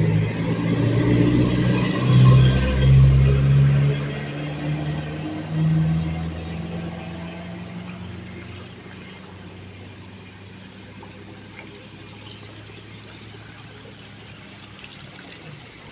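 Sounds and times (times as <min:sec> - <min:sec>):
water trickling: 0:00.0 - 0:15.9.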